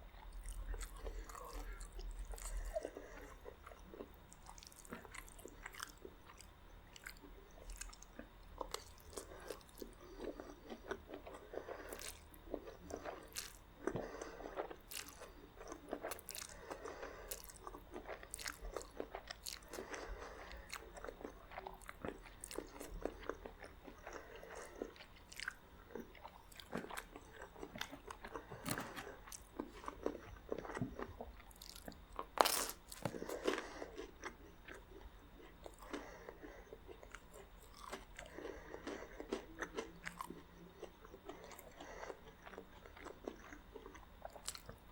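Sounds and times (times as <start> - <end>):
person chewing and biting: 0.2 - 44.8
sharp crunches of bread: 26.5 - 34.3.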